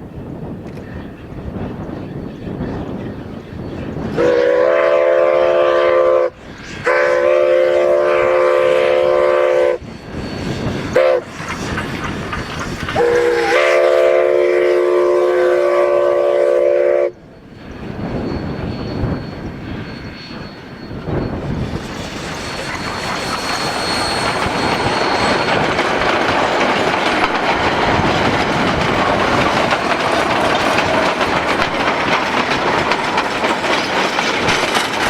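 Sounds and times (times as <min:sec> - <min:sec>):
wind noise: 0:00.0 - 0:35.0
steam locomotive whistle blasts: 0:04.1 - 0:11.7, 0:13.0 - 0:17.5.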